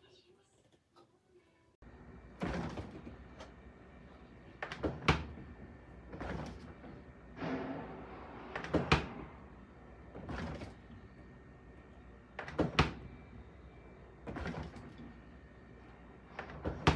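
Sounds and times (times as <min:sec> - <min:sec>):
refrigerator door swishing: 0:08.5 - 0:09.4.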